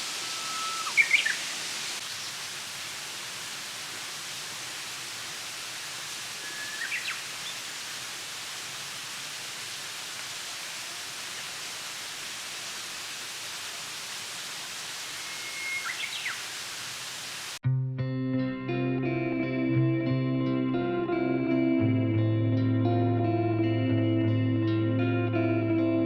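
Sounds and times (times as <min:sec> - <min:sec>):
constant outdoor hiss: 0:00.0 - 0:17.6
songbird whistling: 0:00.2 - 0:01.5, 0:06.4 - 0:07.2, 0:15.1 - 0:16.4.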